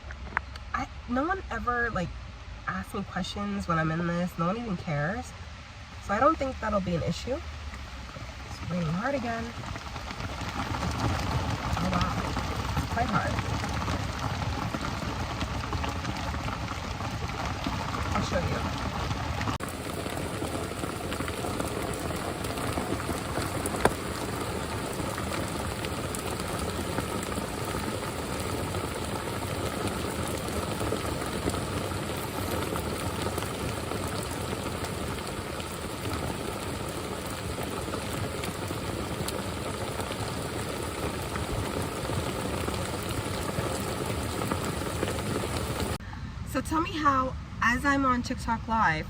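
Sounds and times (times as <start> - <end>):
heavy rain on roof: 7.2 - 46.0.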